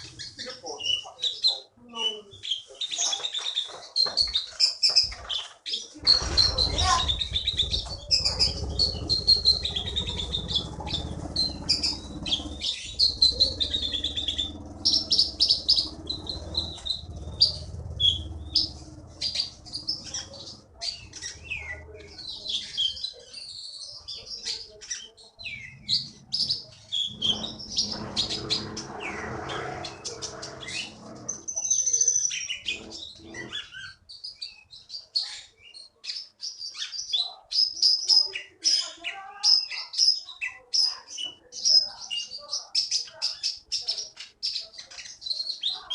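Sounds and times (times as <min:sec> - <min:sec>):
songbird singing: 0:00.0 - 0:45.9
low background rumble: 0:06.0 - 0:23.0, 0:25.4 - 0:31.6.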